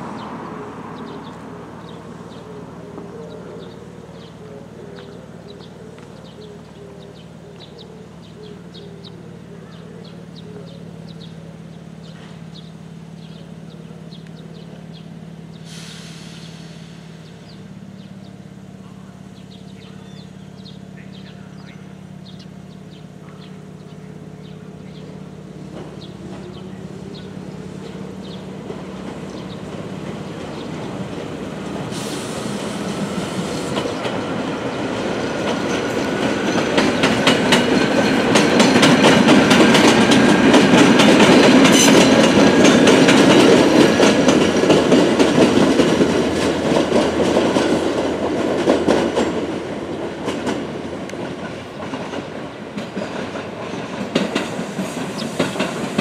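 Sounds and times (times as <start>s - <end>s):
electric train rumbling past: 0.0s - 56.0s
wheels clacking on rail joints: 18.9s - 56.0s.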